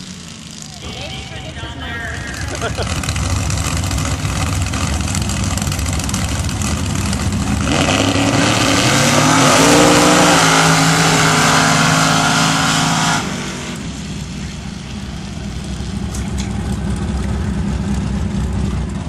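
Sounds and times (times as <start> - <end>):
truck engine at full throttle: 0.0 - 19.0.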